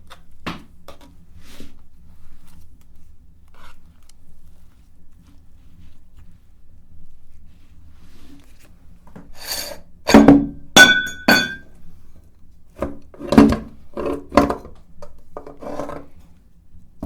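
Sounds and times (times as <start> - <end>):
irregular knocks and clinks: 10.1 - 11.7.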